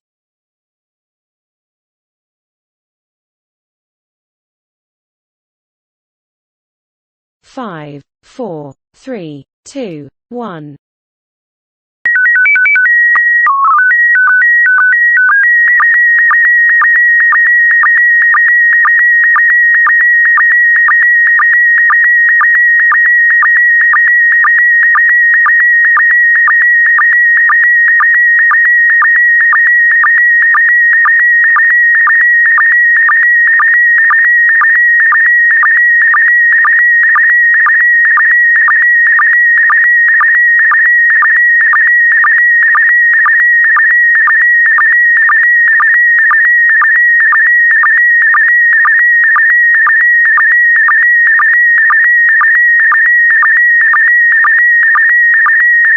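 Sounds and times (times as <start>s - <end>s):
stepped beeps: 12.1s - 55.9s.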